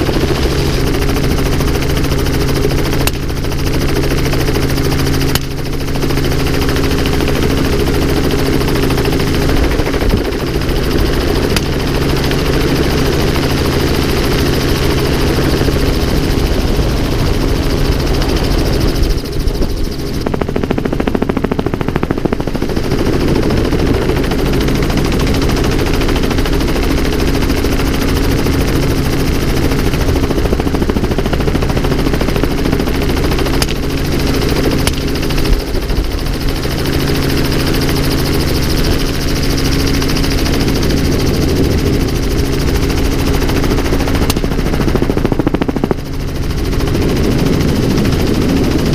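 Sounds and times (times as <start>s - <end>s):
helicopter engine and rotor drone: 0.0s - 48.9s
sharp cracks: 33.6s - 34.0s.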